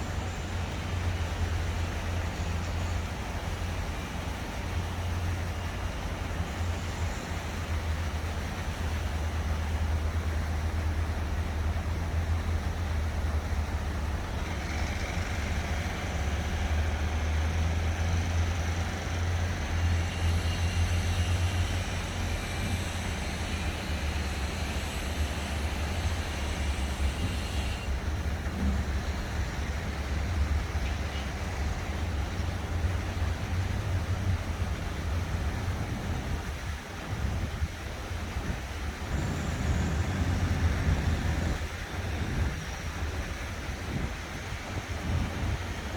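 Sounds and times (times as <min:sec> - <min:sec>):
construction work: 0:00.0 - 0:45.9
distant traffic rumble: 0:00.0 - 0:45.9
fountain water hissing: 0:00.0 - 0:45.9
bright high hiss: 0:19.0 - 0:29.4.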